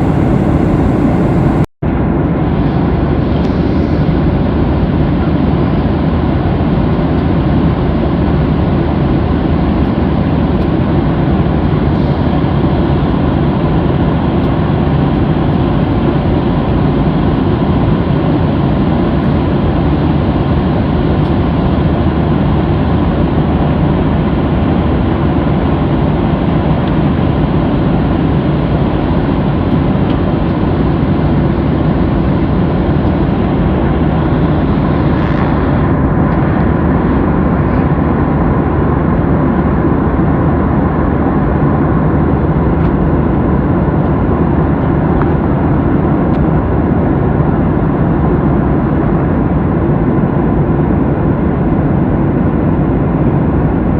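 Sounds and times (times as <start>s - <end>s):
faint steady hum: 0.0s - 1.7s
jet engines and airflow rushing: 0.0s - 2.1s, 18.6s - 53.9s.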